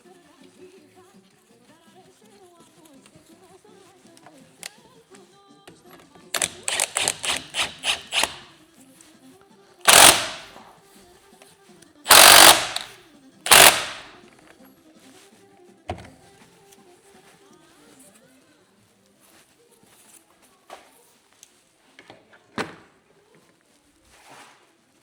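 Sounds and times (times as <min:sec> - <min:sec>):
harsh tool bursts: 0:06.4 - 0:08.5, 0:09.9 - 0:10.6, 0:12.1 - 0:14.1.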